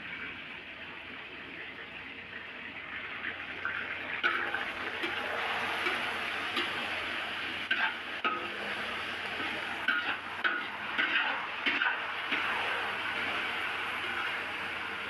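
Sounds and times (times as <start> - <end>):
chicken sizzling in hot oil: 0.0 - 15.0
fork scraping a metal wok: 7.6 - 13.4.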